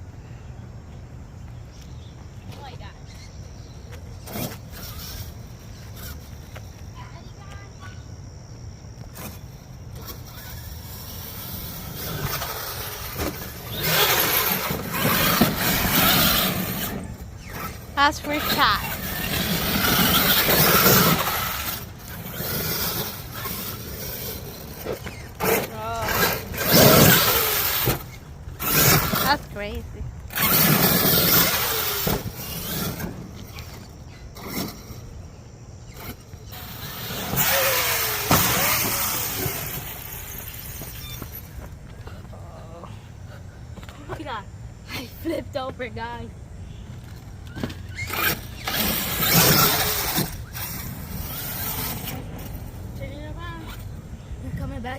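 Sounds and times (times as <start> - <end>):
tyres running over ground: 0.8 - 54.9
rc truck motor: 4.2 - 7.9, 9.0 - 41.7, 47.0 - 53.9.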